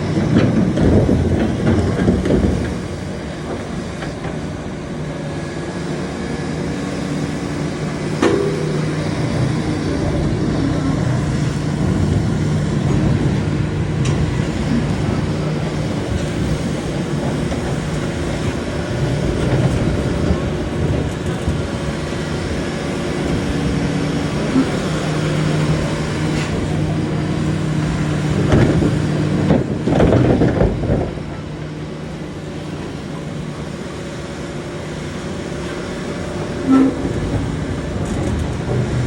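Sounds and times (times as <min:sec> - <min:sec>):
heavy diesel machinery running: 0:00.0 - 0:39.0
metal clanks and knocks: 0:08.1 - 0:13.3.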